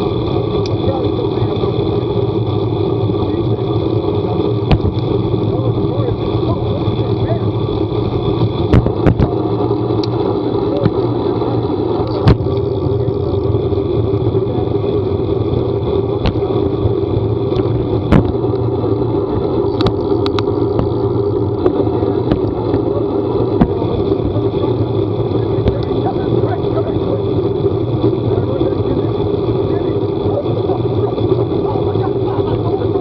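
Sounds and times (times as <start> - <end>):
road and wind noise: 0.0 - 33.0
vehicle engine running: 0.0 - 33.0.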